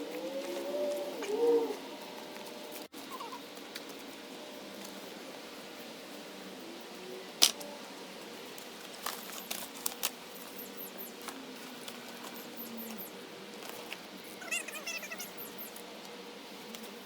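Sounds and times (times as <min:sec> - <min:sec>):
faint high chirping: 0:14.4 - 0:15.8.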